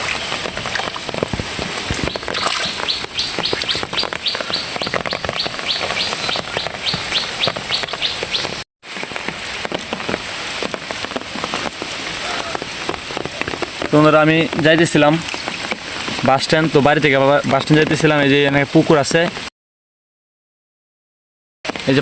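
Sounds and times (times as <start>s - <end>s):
steady rain falling: 0.0s - 19.5s
bird chirping rapidly: 1.9s - 8.6s.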